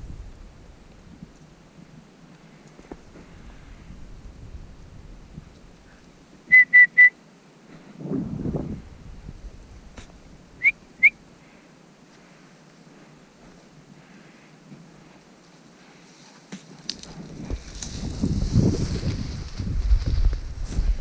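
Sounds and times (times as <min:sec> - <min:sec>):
low rush of noise: 0:00.0 - 0:21.0
dog whistle blasts: 0:06.5 - 0:07.1.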